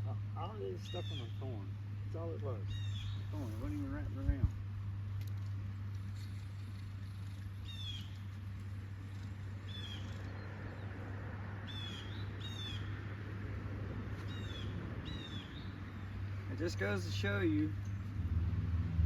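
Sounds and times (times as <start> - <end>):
bird calling: 0.0 - 4.1, 6.1 - 13.1, 14.1 - 17.9
low background hum: 0.0 - 19.0.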